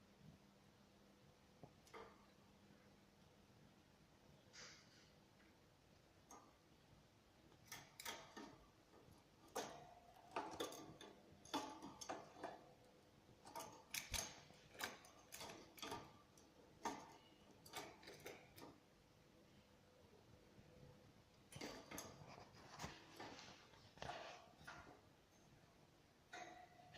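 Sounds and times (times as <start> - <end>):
canaries clicking and tapping in cage: 1.6 - 2.3, 6.0 - 6.7, 7.4 - 19.0, 21.3 - 25.6, 26.3 - 26.9.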